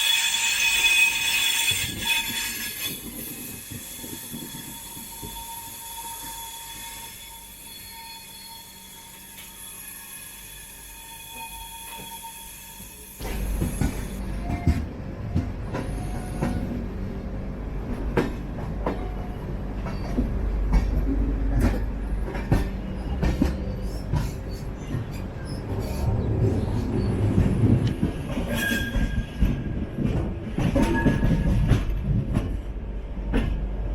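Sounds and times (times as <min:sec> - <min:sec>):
train rumbling on track: 0:00.0 - 0:33.9.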